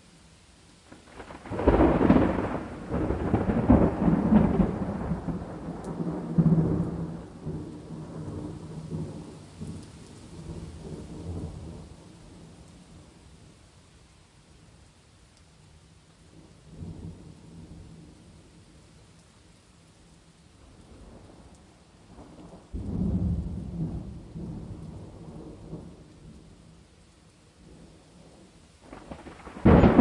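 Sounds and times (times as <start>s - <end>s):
steady rain: 0.0s - 30.0s
thunder cracks and rumble: 1.1s - 9.8s, 22.1s - 26.4s, 28.8s - 30.0s.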